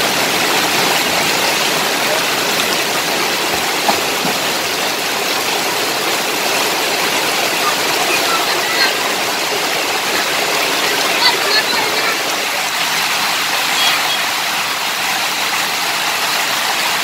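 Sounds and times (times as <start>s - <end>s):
heavy rain and rushing floodwater: 0.0s - 17.0s
splashes or knocks: 1.8s - 5.2s.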